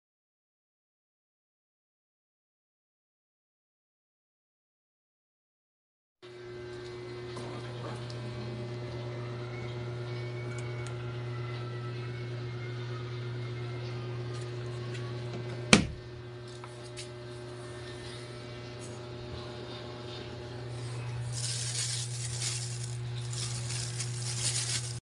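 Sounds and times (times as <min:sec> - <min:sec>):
washing machine motor humming: 0:06.2 - 0:25.0.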